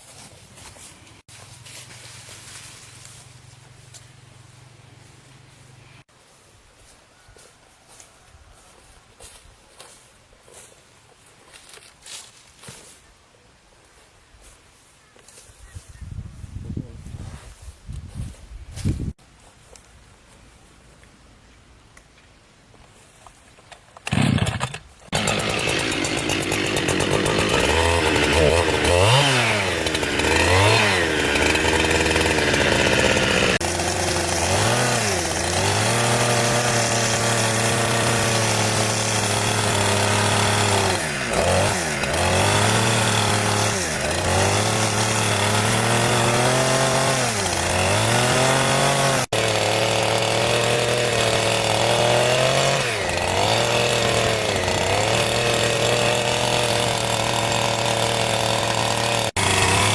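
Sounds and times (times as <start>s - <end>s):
chainsaw cutting wood: 24.0s - 59.9s.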